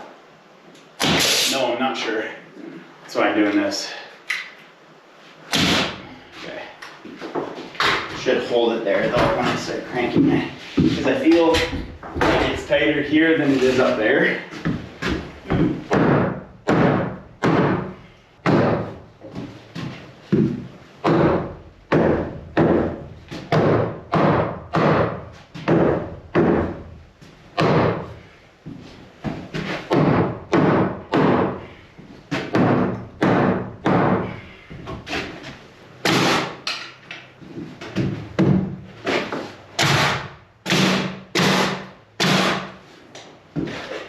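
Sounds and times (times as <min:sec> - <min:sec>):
hammer pounding on wood: 0:14.6 - 0:19.1, 0:20.3 - 0:27.0, 0:27.6 - 0:28.2, 0:29.5 - 0:31.7, 0:32.3 - 0:34.9, 0:36.0 - 0:36.8, 0:38.0 - 0:38.8, 0:39.8 - 0:42.8.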